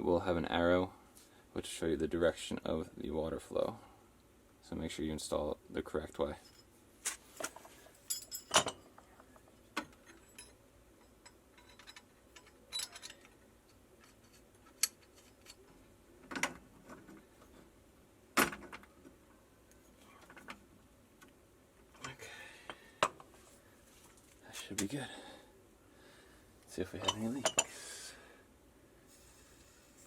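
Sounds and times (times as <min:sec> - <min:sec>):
pliers clicking and clanking on metal: 0:09.8 - 0:15.7.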